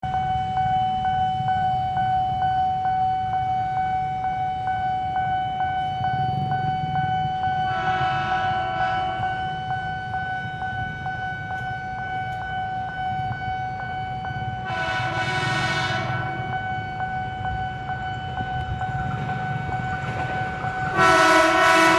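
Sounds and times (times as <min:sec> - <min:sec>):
continuous high tone: 0:00.0 - 0:21.9
train rumble: 0:04.1 - 0:21.9
electric train horn blasts: 0:07.6 - 0:10.8, 0:14.6 - 0:16.7, 0:20.8 - 0:21.9.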